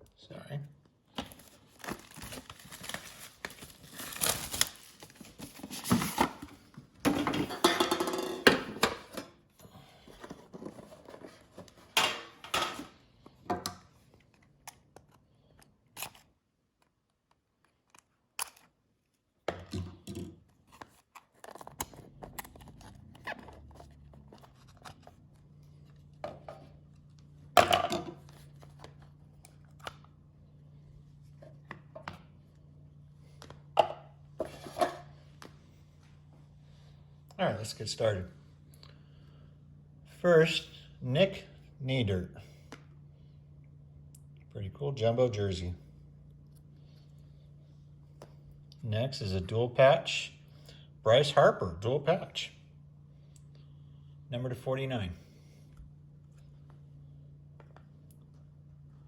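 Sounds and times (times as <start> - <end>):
faint steady hum: 0.0 - 59.0
plastic wrap tearing and crinkling: 1.3 - 5.9
cardboard packaging handled: 1.3 - 6.7.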